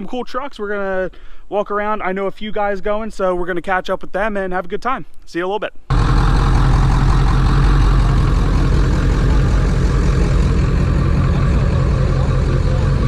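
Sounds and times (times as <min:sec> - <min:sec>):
road noise: 0:05.9 - 0:13.0
truck engine rumble: 0:05.9 - 0:13.0.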